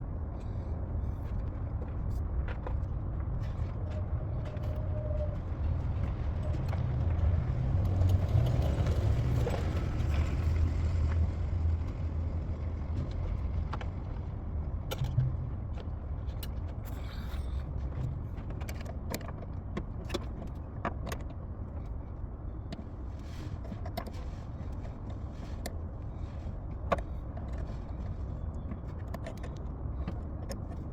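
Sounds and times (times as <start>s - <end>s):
car engine rumbling: 0.0s - 30.9s.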